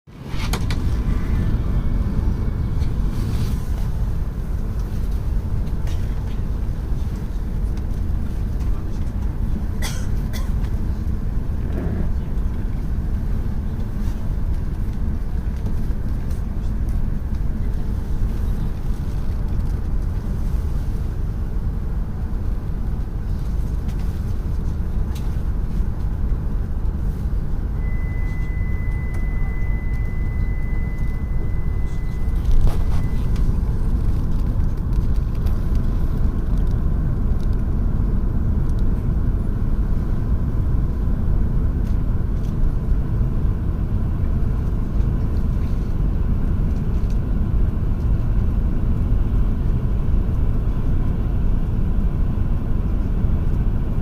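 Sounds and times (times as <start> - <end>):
train interior rumble: 0.1 - 54.0
thin high tone: 27.8 - 33.3.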